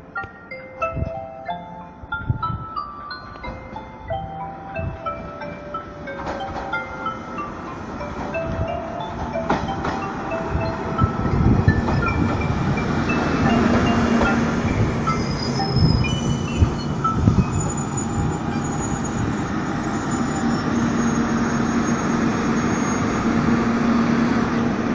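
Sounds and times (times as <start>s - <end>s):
low steady train hum: 0.0s - 24.9s
squealing train brakes and wheels: 11.0s - 24.8s.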